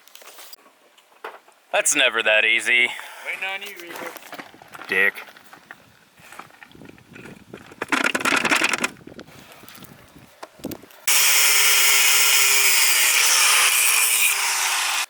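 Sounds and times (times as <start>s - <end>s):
rattling tool noise: 6.5s - 9.0s
power tool running: 11.1s - 15.0s.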